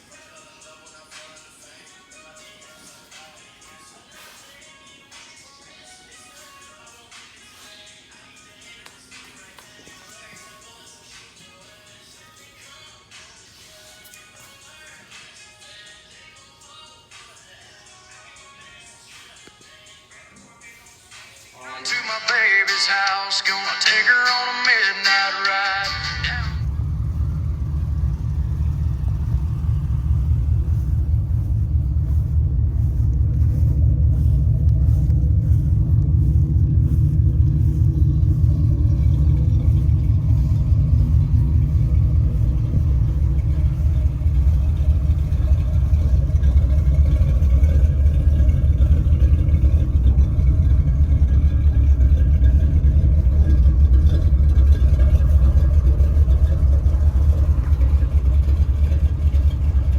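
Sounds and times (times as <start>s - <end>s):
deep vehicle rumble: 25.0s - 59.9s.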